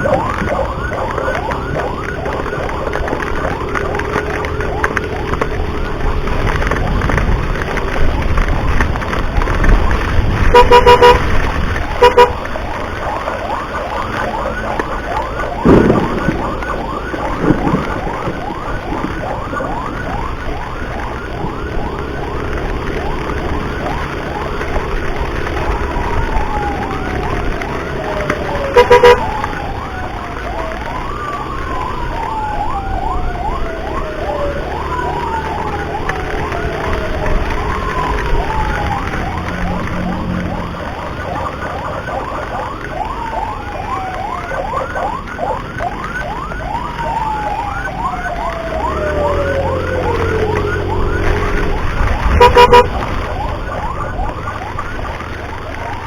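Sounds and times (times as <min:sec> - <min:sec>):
ambulance siren: 0:00.0 - 0:56.0
road noise: 0:00.0 - 0:56.0
horn honking: 0:10.4 - 0:12.5, 0:28.7 - 0:29.3, 0:52.2 - 0:53.2
thumps: 0:15.4 - 0:19.7.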